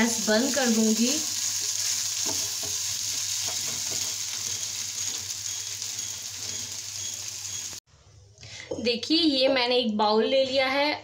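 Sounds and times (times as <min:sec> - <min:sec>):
potatoes sizzling in oil: 0:00.0 - 0:07.8.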